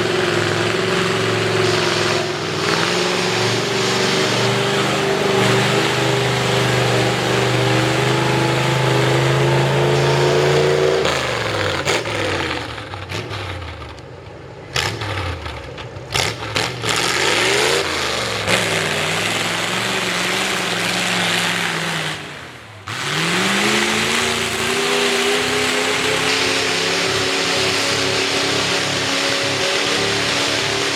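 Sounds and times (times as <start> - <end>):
sharp exhaust cracks: 0.0 - 30.9
truck engine revving hard: 0.0 - 30.9.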